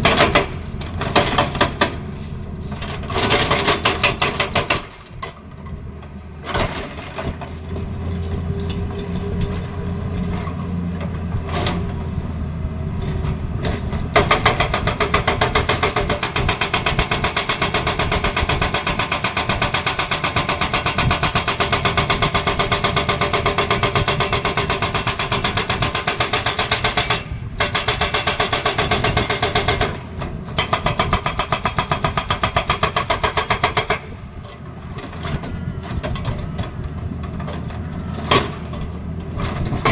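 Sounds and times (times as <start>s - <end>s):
hydraulic breaker hammering: 0.0s - 2.1s, 2.8s - 5.4s, 13.8s - 34.2s
excavator engine droning: 0.0s - 25.4s.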